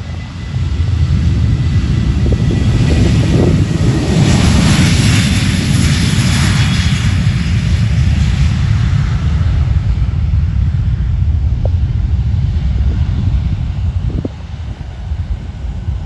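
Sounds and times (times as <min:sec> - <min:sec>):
aircraft engine roar: 0:00.0 - 0:16.0.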